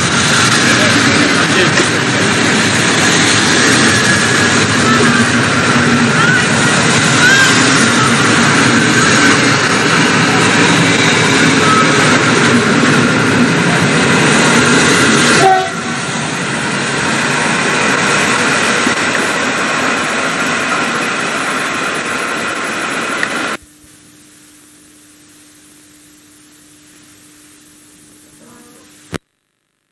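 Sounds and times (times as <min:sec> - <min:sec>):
train wheels rumbling and clattering: 0:00.0 - 0:23.6.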